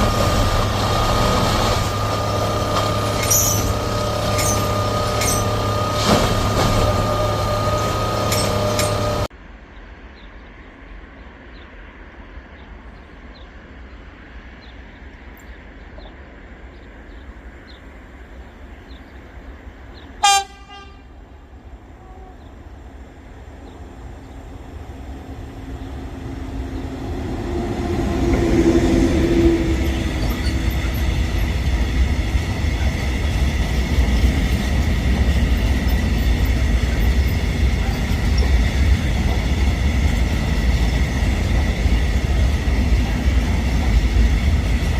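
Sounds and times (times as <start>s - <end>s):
train rumble passing: 0.0s - 44.9s
train horn blast: 20.2s - 21.3s.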